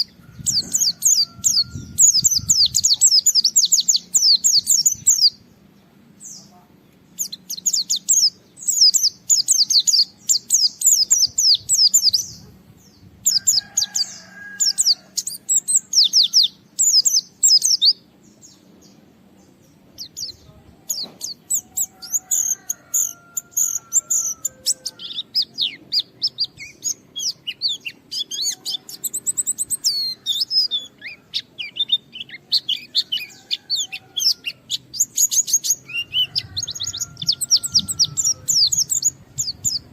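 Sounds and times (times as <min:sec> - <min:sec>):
bird high twittering song: 0:00.0 - 0:39.9.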